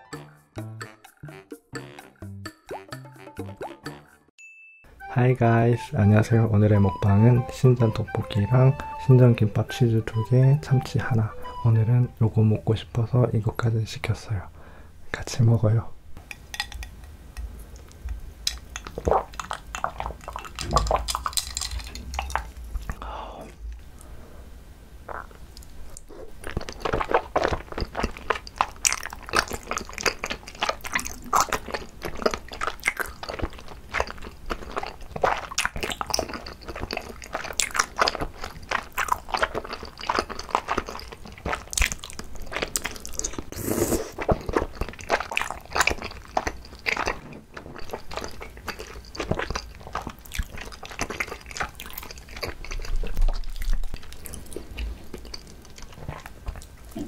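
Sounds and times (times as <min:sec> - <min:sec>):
chewing chewy rice cakes: 0:17.7 - 0:23.0, 0:25.1 - 0:57.0.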